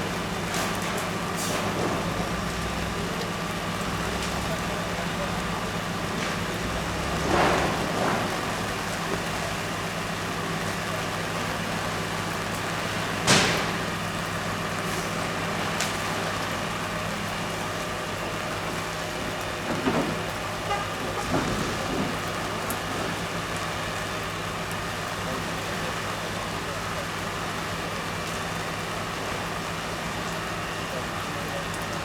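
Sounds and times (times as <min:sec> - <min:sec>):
engine drone: 0:00.0 - 0:32.0
rushing spraying water: 0:00.0 - 0:32.0
sharp crack: 0:13.1 - 0:16.6.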